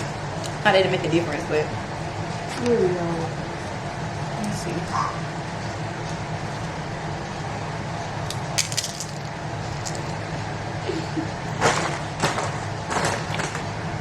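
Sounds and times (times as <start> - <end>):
low background hum: 0.0 - 14.0
chips being crunched and chewed: 8.2 - 10.2.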